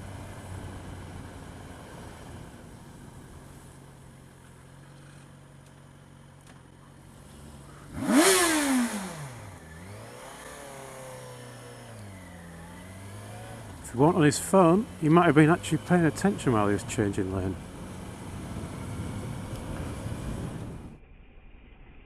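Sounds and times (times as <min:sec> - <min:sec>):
motorcycle engine revving: 0:06.9 - 0:21.0.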